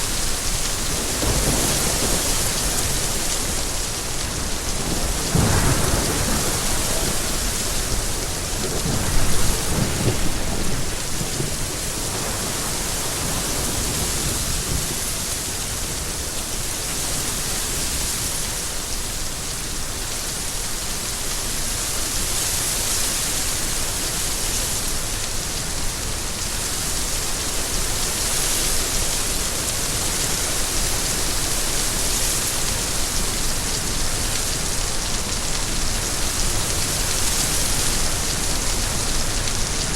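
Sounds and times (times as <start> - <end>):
heavy rain hissing: 0.0 - 39.9
low rumble of thunder: 0.2 - 16.0.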